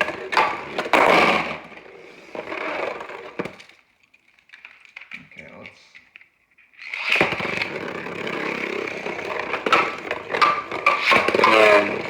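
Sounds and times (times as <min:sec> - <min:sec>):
spinning tops whirring: 0:06.8 - 0:12.0
sharp clacks of tops colliding: 0:09.4 - 0:12.0.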